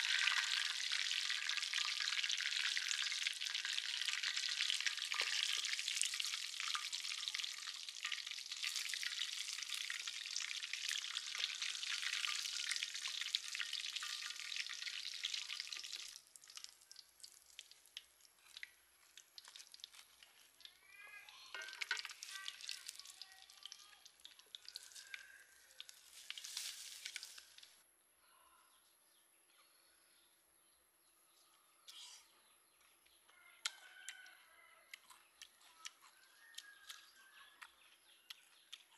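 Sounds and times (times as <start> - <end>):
deep-frying crackling sizzle: 0.0 - 27.8.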